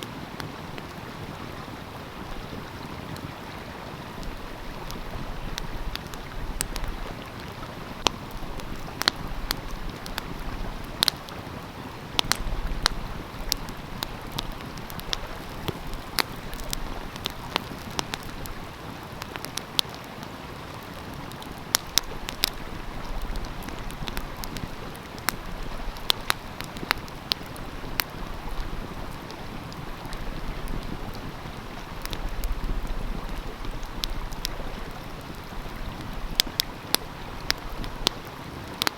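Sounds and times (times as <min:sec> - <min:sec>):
stream flowing: 0:00.0 - 0:38.9
wood fire crackling and popping: 0:00.0 - 0:38.9.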